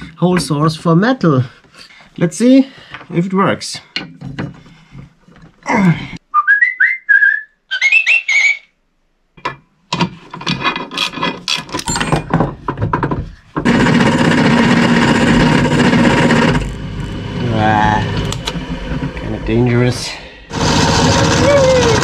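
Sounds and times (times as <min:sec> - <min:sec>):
rising whistled notes: 0:06.3 - 0:08.8
electric drill cutting steel: 0:13.7 - 0:17.4, 0:20.5 - 0:22.0.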